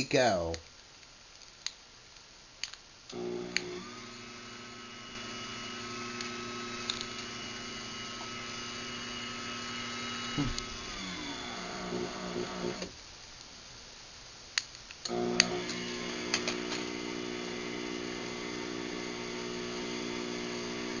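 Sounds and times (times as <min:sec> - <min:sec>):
sharp clicks: 0:02.6 - 0:03.8
garage door opener motor humming: 0:03.1 - 0:13.0, 0:15.1 - 0:21.0.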